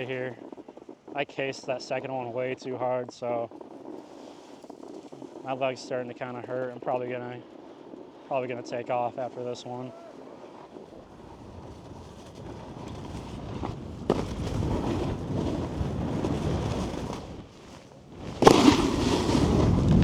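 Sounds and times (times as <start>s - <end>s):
snowboard scraping over snow: 0.0s - 20.0s
snowboard hard landing impact: 9.9s - 20.0s.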